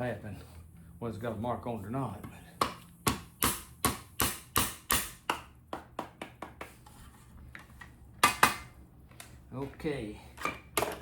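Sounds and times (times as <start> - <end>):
punch tapping on metal: 2.6 - 6.7.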